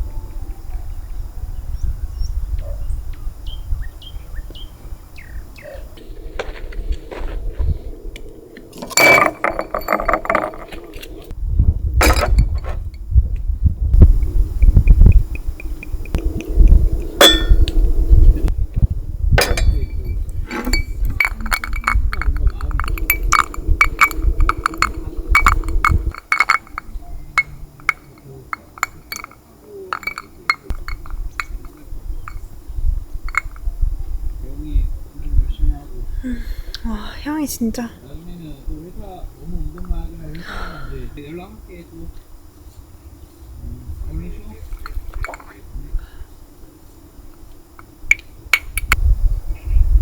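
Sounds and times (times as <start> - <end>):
low rumbling handling noise: 5.8 - 34.6, 43.6 - 45.9
light sharp clinks: 8.7 - 11.2, 14.1 - 17.8, 19.4 - 32.6, 33.2 - 33.7, 44.4 - 45.6.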